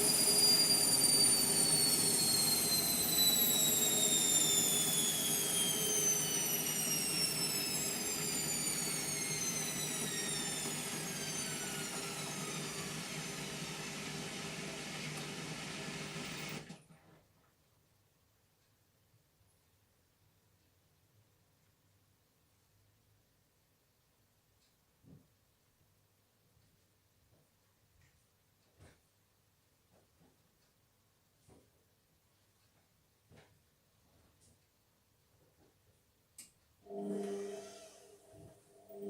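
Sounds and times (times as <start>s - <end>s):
washing machine drum whine: 0.0s - 16.8s.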